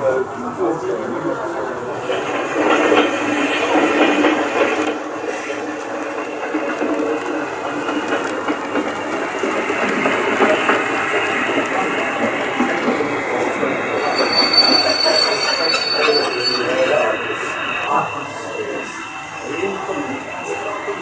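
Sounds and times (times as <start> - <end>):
model train rolling rattle: 2.0 - 17.1
thin high squeal: 13.9 - 20.7.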